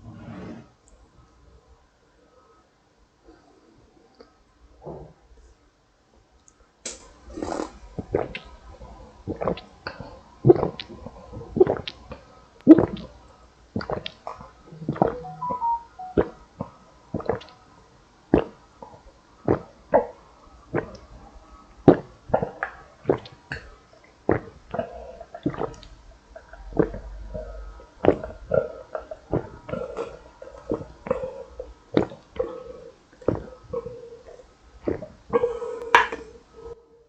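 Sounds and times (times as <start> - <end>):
person gulping juice: 9.3 - 12.1, 12.7 - 13.1, 14.8 - 15.4, 19.5 - 21.1, 21.9 - 23.4, 24.2 - 27.4.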